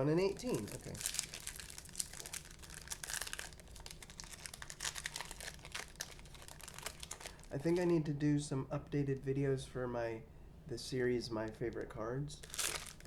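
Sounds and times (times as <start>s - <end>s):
cards and plastic wrappers crinkling: 0.1s - 8.1s, 12.4s - 13.0s.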